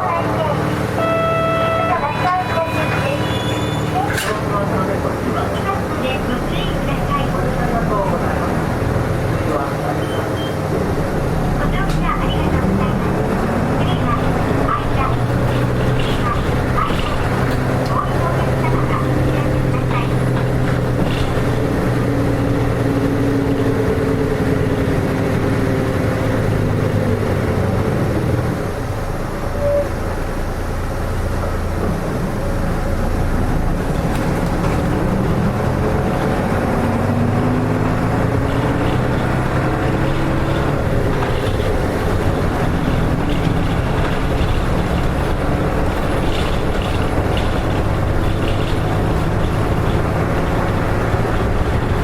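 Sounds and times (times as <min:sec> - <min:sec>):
bus engine running: 0:00.0 - 0:52.0.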